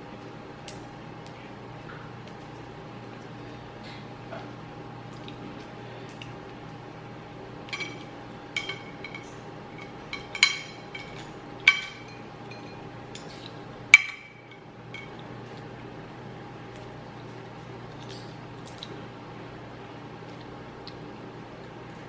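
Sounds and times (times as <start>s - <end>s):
utensil clinking against a dish: 7.7s - 15.2s.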